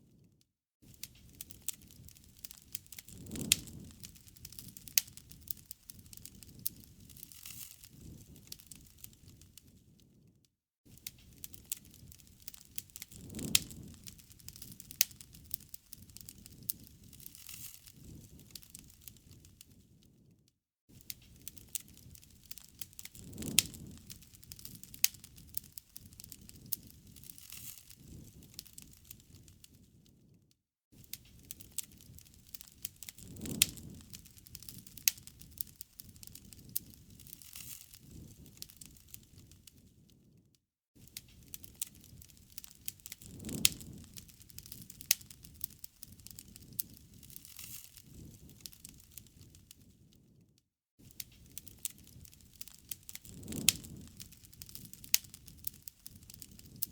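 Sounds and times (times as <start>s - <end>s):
low rumble of flame: 0.0s - 56.9s
campfire crackling and popping: 0.8s - 9.9s, 10.9s - 20.2s, 20.9s - 30.4s, 31.0s - 40.4s, 41.0s - 50.4s, 51.0s - 56.9s.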